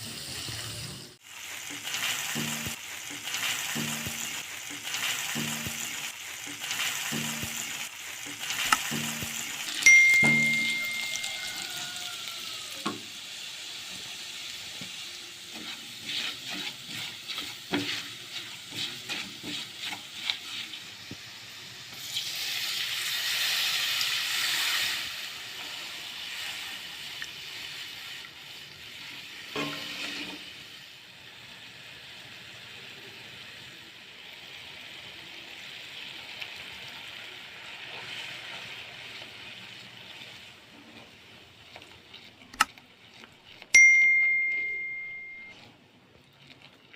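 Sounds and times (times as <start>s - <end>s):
chicken sizzling in a frying pan: 0.0s - 46.9s
spatula scraping a pan: 14.0s - 21.1s, 29.5s - 30.7s.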